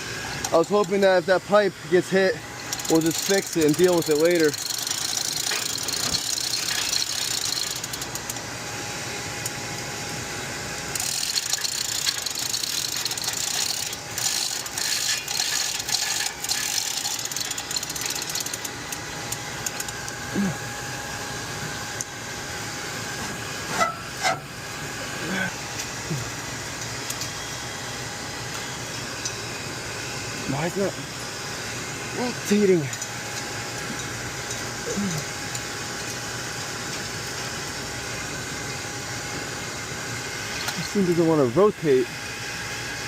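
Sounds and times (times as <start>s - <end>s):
mechanical background noise: 0.0s - 42.9s
hand tools clicking on metal: 2.7s - 8.4s, 11.0s - 20.2s.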